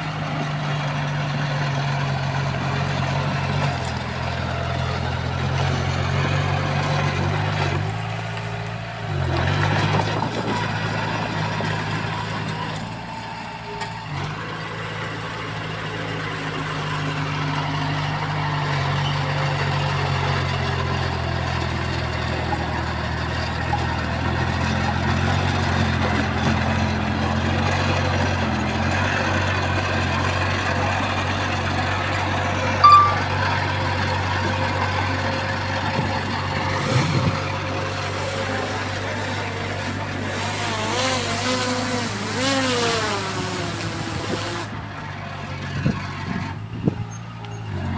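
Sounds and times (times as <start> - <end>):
heavy diesel engine running: 0.0 - 40.6, 44.6 - 47.9
short high beep: 32.8 - 33.5.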